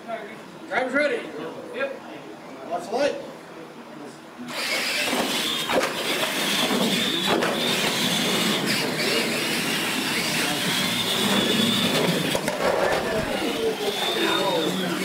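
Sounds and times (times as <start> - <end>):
toy truck motor whine: 4.5 - 15.0.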